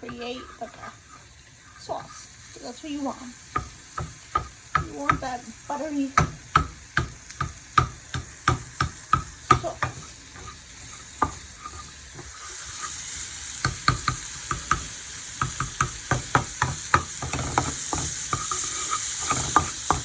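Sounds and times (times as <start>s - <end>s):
food sizzling in a pan: 0.0s - 20.0s
utensil knocking against pan: 3.6s - 5.4s, 6.2s - 12.3s, 13.6s - 18.5s.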